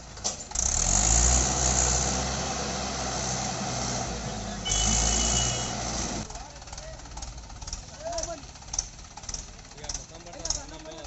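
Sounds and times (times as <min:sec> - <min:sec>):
tractor diesel engine straining: 0:00.0 - 0:11.0.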